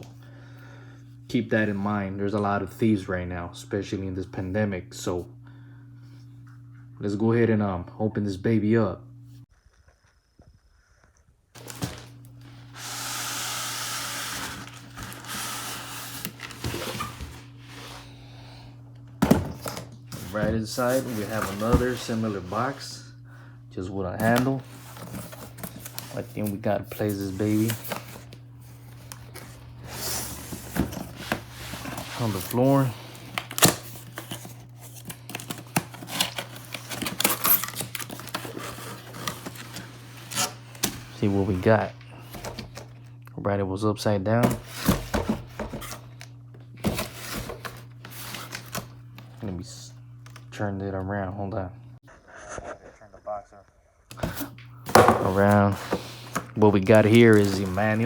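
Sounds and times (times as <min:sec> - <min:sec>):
cardboard rustling and clicks: 0:11.6 - 0:13.0, 0:13.7 - 0:17.6, 0:24.2 - 0:41.3, 0:54.1 - 0:58.0
packing tape scraping: 0:11.6 - 0:18.0, 0:24.2 - 0:42.9, 0:55.2 - 0:58.0.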